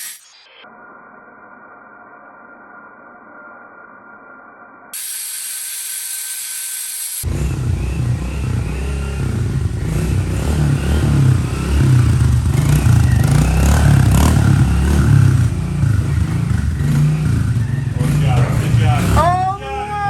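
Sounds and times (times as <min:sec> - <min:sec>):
engine revving unevenly: 0:07.2 - 0:20.0.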